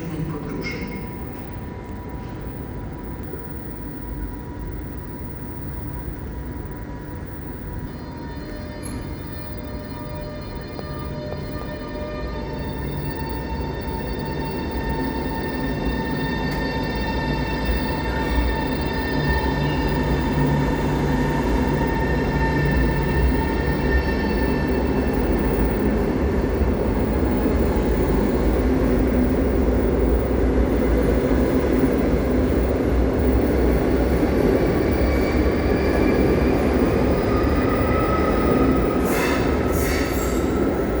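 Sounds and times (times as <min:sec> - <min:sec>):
electric train pulling away: 0:00.0 - 0:41.0
sharp train clacks: 0:32.9 - 0:41.0.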